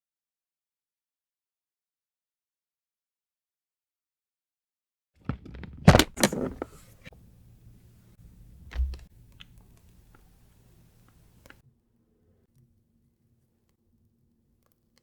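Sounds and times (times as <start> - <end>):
dull thump: 5.3 - 7.2.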